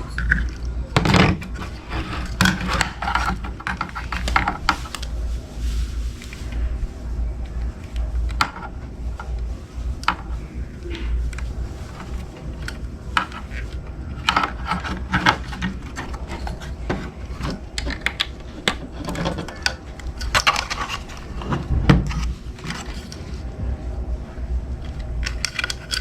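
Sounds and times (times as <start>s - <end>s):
objects clicking and knocking: 0.0s - 5.2s, 10.0s - 23.4s, 24.8s - 26.0s
low rumble: 0.0s - 26.0s.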